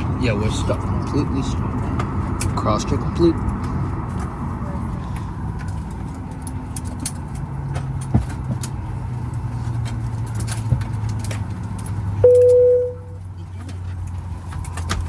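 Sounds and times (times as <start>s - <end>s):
passengers clicks and knocks: 1.7s - 15.0s
cabin chime: 12.2s - 13.2s
aircraft air system hum: 12.2s - 13.5s.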